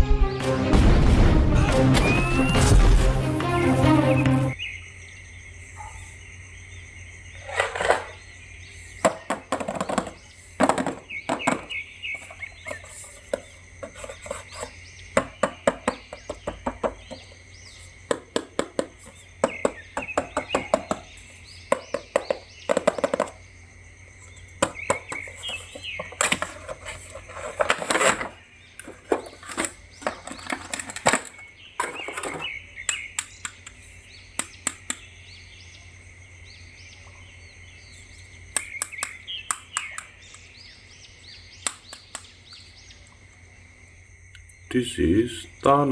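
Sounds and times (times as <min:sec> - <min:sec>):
plastic toy clicks and taps: 0:34.4 - 0:35.0, 0:38.5 - 0:40.4, 0:41.6 - 0:42.3.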